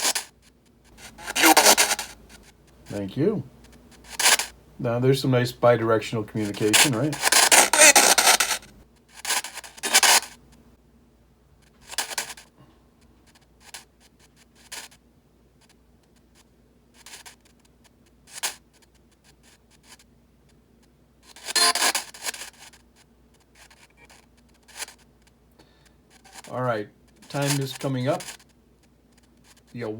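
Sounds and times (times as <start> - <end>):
scratchy radio noise bursts: 1.0 - 2.4, 6.4 - 8.7, 9.8 - 10.2, 21.5 - 22.0, 27.2 - 28.3.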